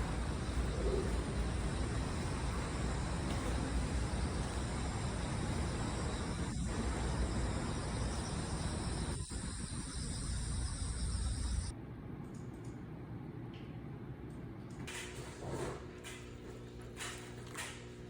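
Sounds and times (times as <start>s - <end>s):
continuous wide hiss: 0.0s - 11.7s
crickets chirring: 0.0s - 11.7s.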